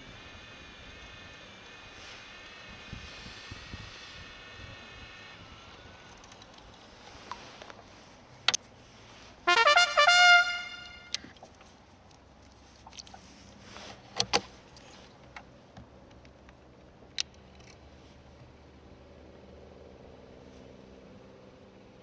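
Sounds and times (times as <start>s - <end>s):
trumpet-like fanfare: 9.5s - 11.2s.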